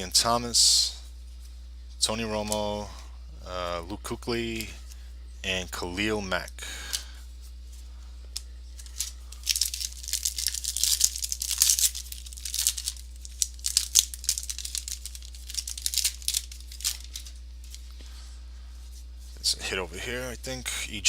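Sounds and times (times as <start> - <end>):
cards clicking: 8.3 - 17.8
card pack wrappers crinkling: 8.8 - 18.0.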